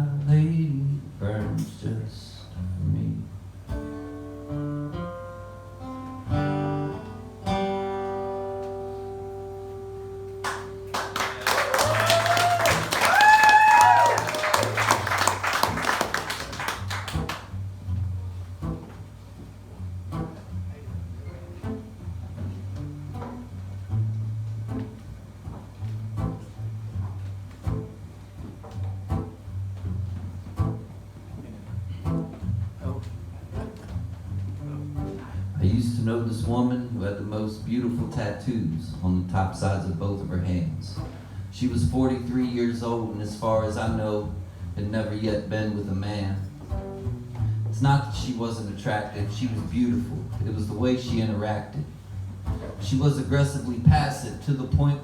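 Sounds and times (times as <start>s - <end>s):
acoustic guitar picking: 0.0s - 11.6s, 14.1s - 55.0s
audience cheering: 10.4s - 17.5s
audience clapping: 10.4s - 17.6s
deep bass line: 16.8s - 55.0s.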